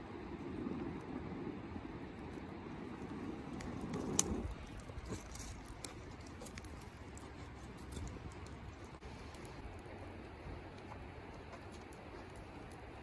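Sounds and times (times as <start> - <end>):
twigs rustling: 3.3 - 9.6
twig snapping: 3.9 - 7.2.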